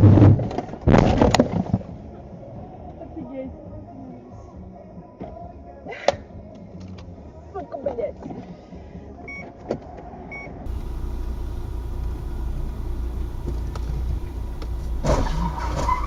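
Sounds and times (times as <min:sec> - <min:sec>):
road and engine rumble: 0:10.7 - 0:16.0.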